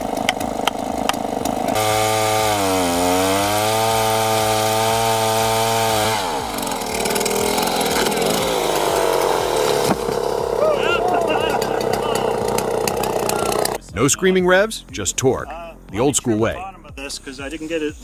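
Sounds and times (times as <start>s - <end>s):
chainsaw cutting under heavy load: 0.0s - 13.8s.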